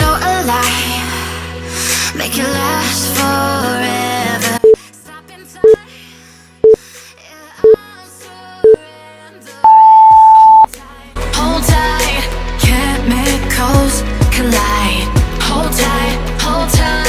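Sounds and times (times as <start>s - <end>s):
background music: 0.0s - 17.0s
timer beeps: 9.6s - 10.7s.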